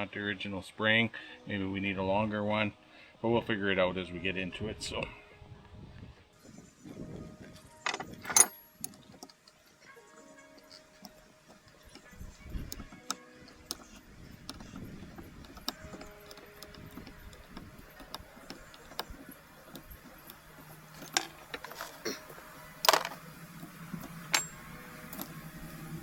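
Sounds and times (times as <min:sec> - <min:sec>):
metallic clicks of hand tools: 0:07.8 - 0:09.8, 0:10.5 - 0:25.8.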